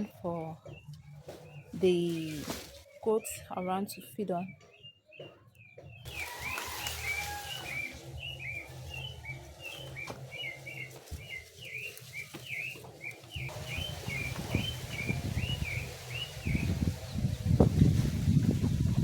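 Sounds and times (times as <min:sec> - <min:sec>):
bird chirping: 0:00.0 - 0:17.9.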